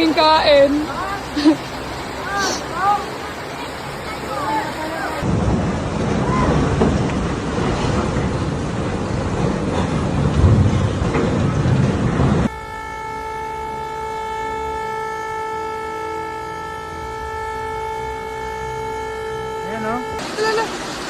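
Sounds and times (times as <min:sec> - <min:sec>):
rushing storm noise: 0:00.0 - 0:12.8, 0:20.2 - 0:21.0
sustained horn-like tone: 0:12.4 - 0:20.7.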